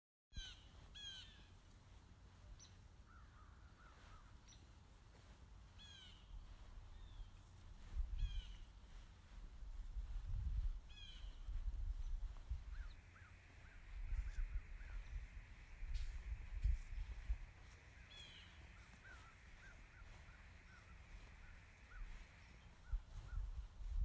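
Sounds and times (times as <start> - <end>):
birds calling: 0.3 - 9.3, 10.7 - 23.9
low rumble: 9.5 - 22.0.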